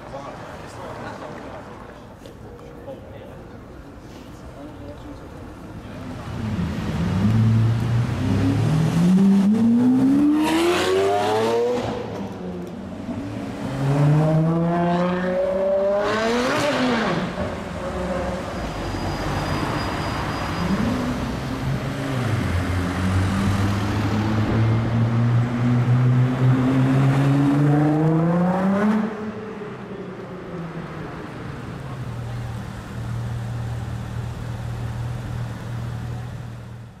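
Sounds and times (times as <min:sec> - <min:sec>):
sports car engine accelerating: 0:06.2 - 0:17.3.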